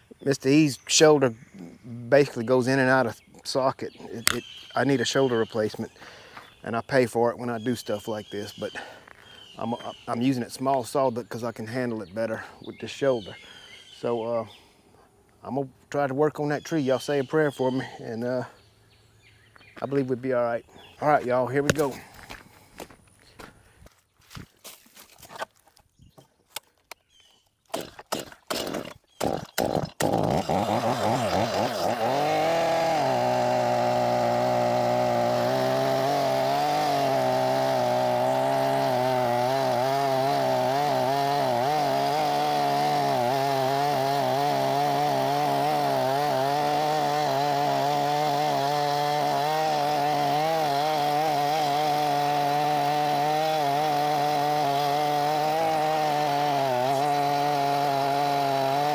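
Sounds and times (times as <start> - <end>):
chainsaw revving: 4.0 - 6.5, 20.7 - 22.4, 27.8 - 58.9
chainsaw cutting tree trunk: 4.1 - 6.5, 20.8 - 23.0, 27.7 - 58.9.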